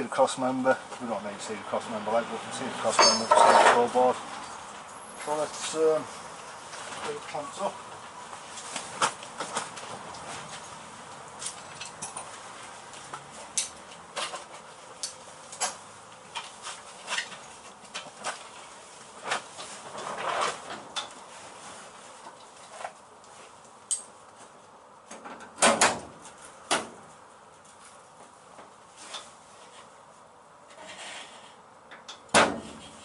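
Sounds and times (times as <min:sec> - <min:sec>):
loud metal clank: 0:03.0 - 0:03.8.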